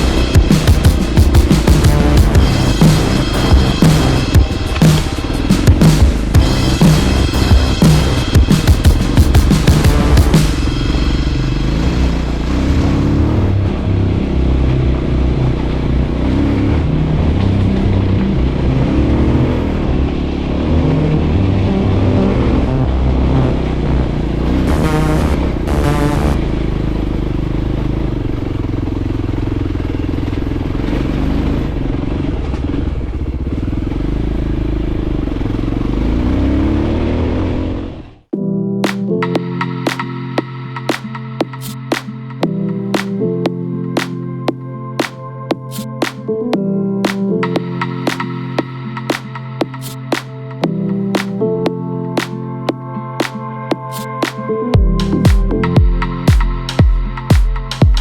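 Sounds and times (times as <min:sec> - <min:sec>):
motorcycle engine revving: 0:00.0 - 0:38.2.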